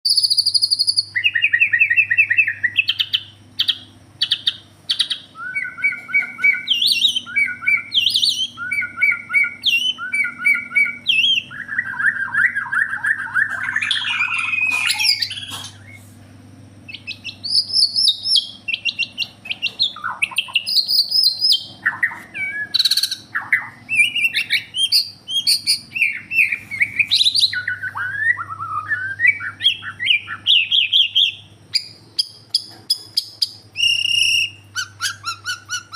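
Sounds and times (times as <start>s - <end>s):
steady low hum: 0.1s - 35.9s
harsh bird chattering: 0.8s - 16.1s, 16.9s - 35.9s
shama whistled song: 5.0s - 15.5s, 16.9s - 31.9s, 33.7s - 35.9s.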